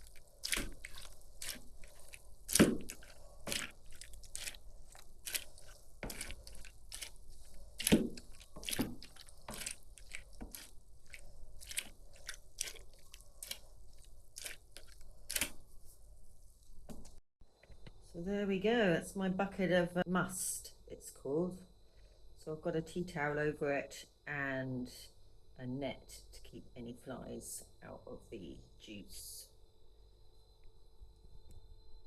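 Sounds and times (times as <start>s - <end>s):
grapes squelching and crunching: 0.0s - 15.8s.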